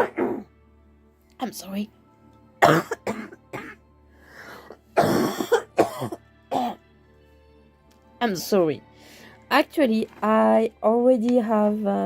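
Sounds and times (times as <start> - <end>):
woman coughing: 0.0 - 0.5, 2.6 - 3.8, 5.0 - 6.8
faint background music: 0.0 - 12.0.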